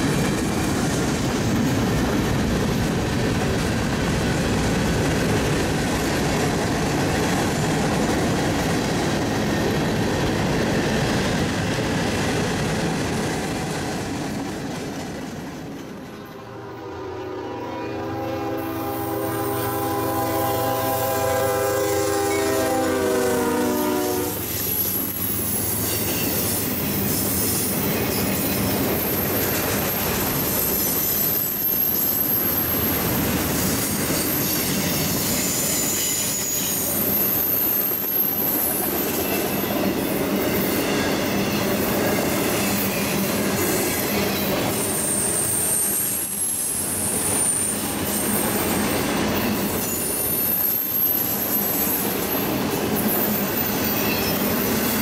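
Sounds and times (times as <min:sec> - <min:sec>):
train wheels rumbling on rail: 0:00.0 - 0:55.0
high-pitched wheel squeals: 0:33.6 - 0:41.6, 0:42.5 - 0:55.0.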